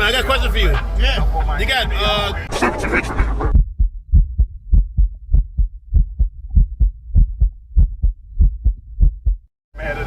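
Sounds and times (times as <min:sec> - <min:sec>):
subwoofer deep bass hits: 0:03.5 - 0:09.5.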